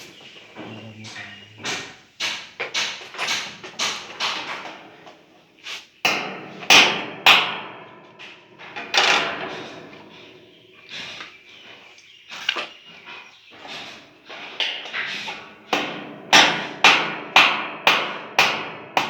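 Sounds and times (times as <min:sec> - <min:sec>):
tools knocking on hard parts: 0:00.6 - 0:04.9.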